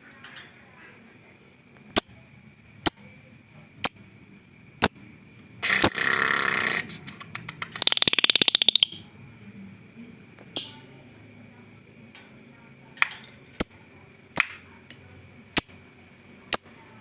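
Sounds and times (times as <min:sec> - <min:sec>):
sharp high bird chirps: 0:02.0 - 0:03.2, 0:03.8 - 0:04.2, 0:04.8 - 0:06.3, 0:07.8 - 0:09.0, 0:13.6 - 0:16.9
harsh buzzy bird call: 0:05.6 - 0:06.9
fast rattling bird trill: 0:07.7 - 0:09.0, 0:13.6 - 0:15.9, 0:16.5 - 0:17.0.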